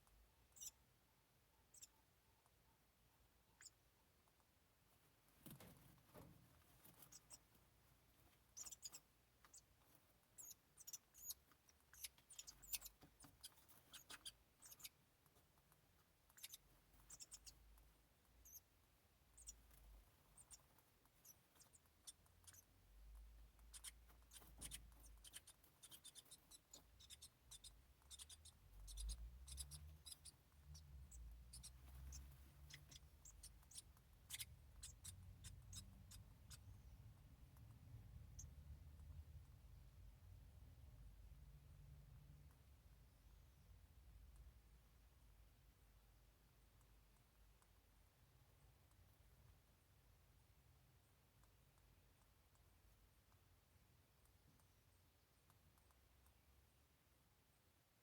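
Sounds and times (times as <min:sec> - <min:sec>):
nestlings squeaking: 0:00.5 - 0:00.9, 0:01.6 - 0:02.0, 0:03.5 - 0:03.8, 0:05.4 - 0:37.0.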